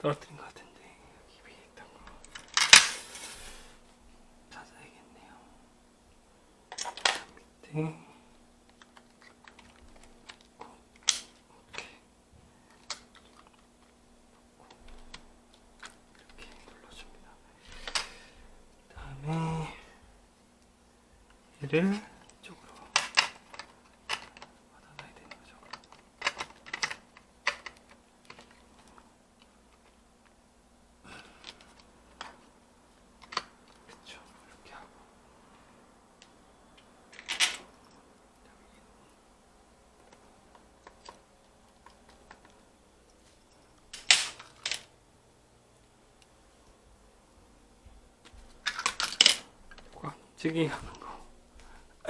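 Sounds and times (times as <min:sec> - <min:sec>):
faint steady hum: 0:00.0 - 0:52.0
hard plastic parts clicking: 0:25.2 - 0:29.0.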